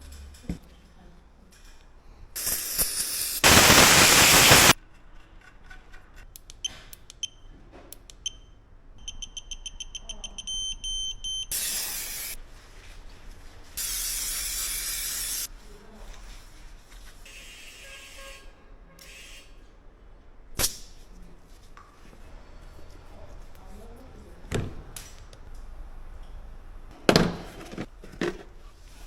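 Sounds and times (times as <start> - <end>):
bursts of hissing: 2.4 - 4.8
high electronic beeps: 9.0 - 11.6.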